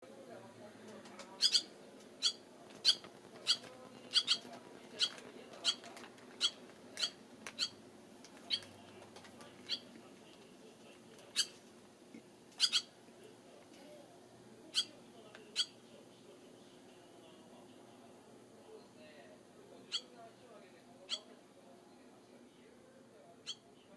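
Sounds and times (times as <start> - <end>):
swallow chirping: 1.4 - 5.8, 12.6 - 12.9.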